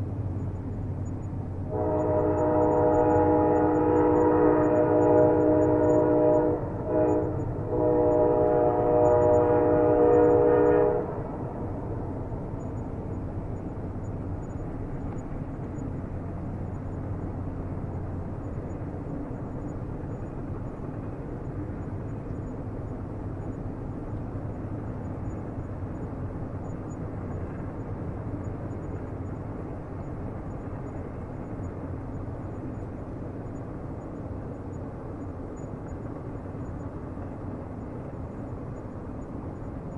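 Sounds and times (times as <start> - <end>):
train rumbling on rails: 0.0 - 39.9
train horn chord: 1.7 - 11.6.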